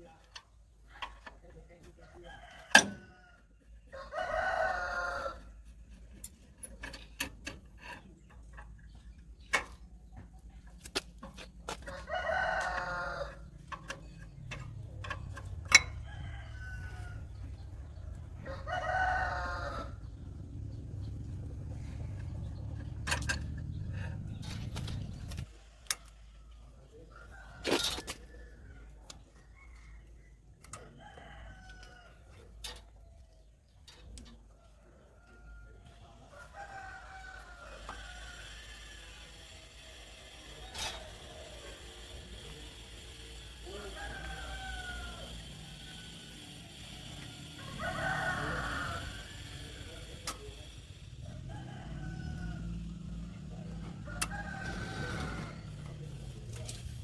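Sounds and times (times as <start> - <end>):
rooster crowing: 2.2 - 5.6, 11.8 - 25.3, 30.8 - 32.2, 35.2 - 39.1, 40.6 - 56.6
steady low rumble: 13.2 - 25.5, 47.0 - 57.0.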